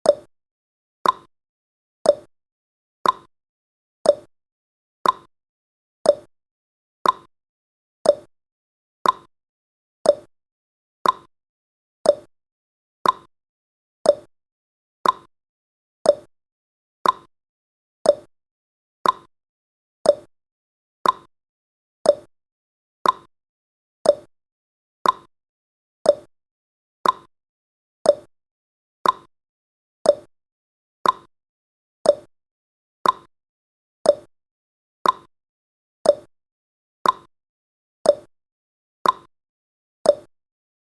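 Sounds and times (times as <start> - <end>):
clock-style ticking: 1.0 - 1.3, 2.1 - 2.3, 3.0 - 3.3, 4.1 - 4.3, 5.0 - 5.3, 6.1 - 6.3, 7.0 - 7.3, 8.1 - 8.3, 9.0 - 9.3, 10.1 - 10.3, 11.0 - 11.3, 12.1 - 12.3, 13.0 - 13.3, 14.1 - 14.3, 15.0 - 15.3, 16.1 - 16.3, 17.0 - 17.3, 18.1 - 18.3, 19.0 - 19.3, 20.1 - 20.3, 21.0 - 21.3, 22.1 - 22.3, 23.0 - 23.3, 24.0 - 24.3, 25.0 - 25.3, 26.1 - 26.3, 27.0 - 27.3, 28.1 - 28.3, 29.0 - 29.3, 30.1 - 30.3, 31.0 - 31.3, 32.1 - 32.3, 33.0 - 33.3, 34.1 - 34.3, 35.0 - 35.3, 36.1 - 36.3, 37.0 - 37.3, 38.1 - 38.3, 39.0 - 39.3, 40.1 - 40.3.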